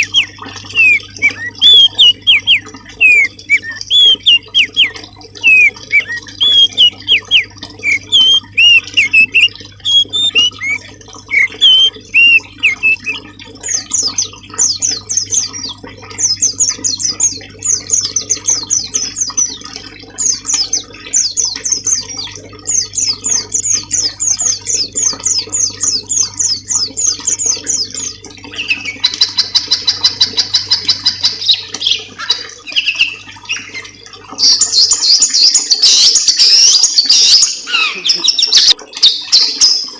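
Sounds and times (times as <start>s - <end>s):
whistled bird notes: 0.0s - 13.2s
buzzy bird trill: 0.0s - 15.7s
songbirds calling: 0.0s - 39.9s.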